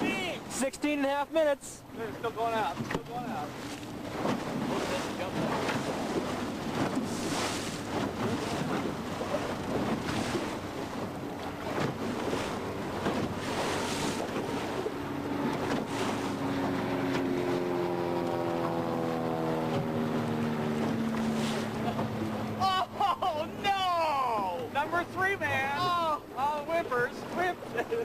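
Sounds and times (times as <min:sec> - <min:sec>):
boat motor: 0:00.0 - 0:28.0
water noise: 0:00.0 - 0:28.0
wind buffeting microphone: 0:02.7 - 0:22.6.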